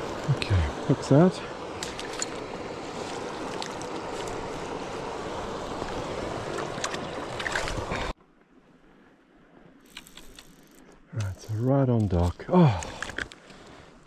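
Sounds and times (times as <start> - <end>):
river rushing: 0.0 - 8.2.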